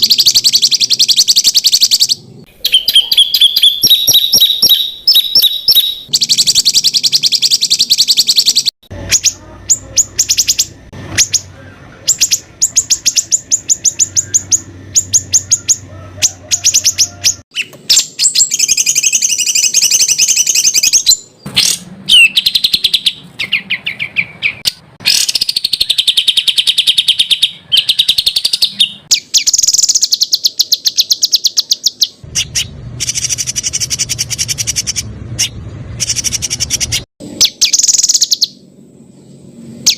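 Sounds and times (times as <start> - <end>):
songbird trilling song: 0.0 - 39.9.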